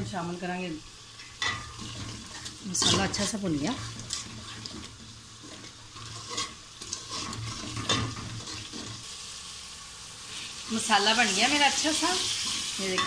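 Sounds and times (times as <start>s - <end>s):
masala sizzling in oil: 0.0s - 13.0s
metal spoon scraping pot: 1.4s - 8.9s.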